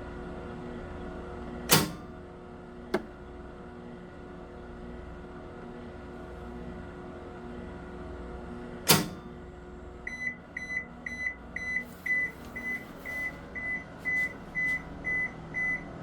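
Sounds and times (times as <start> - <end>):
washing machine hum: 0.0 - 16.0
washing machine clunk: 1.7 - 2.2, 2.9 - 3.2, 8.9 - 9.4.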